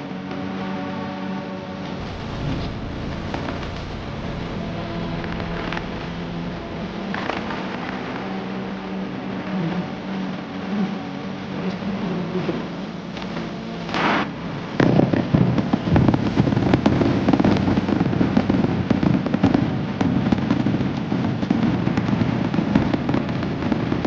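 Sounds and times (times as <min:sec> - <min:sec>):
low rumble: 0:01.9 - 0:10.2.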